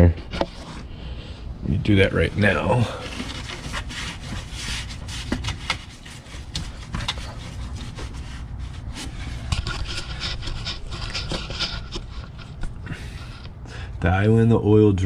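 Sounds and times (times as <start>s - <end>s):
towels rustling and scraping: 1.9s - 13.3s.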